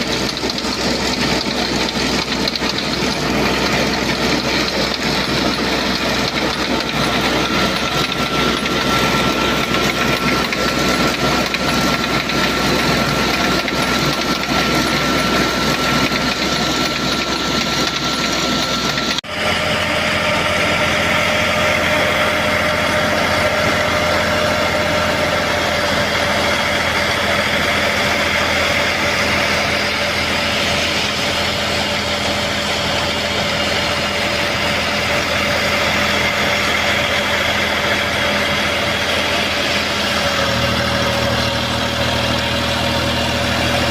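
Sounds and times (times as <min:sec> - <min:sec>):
steady hum: 0:00.0 - 0:43.9
tractor engine running: 0:00.0 - 0:43.9.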